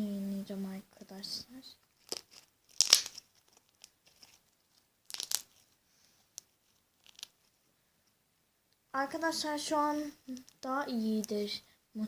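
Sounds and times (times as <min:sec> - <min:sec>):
slime squishing with wet pops: 0:02.0 - 0:04.0.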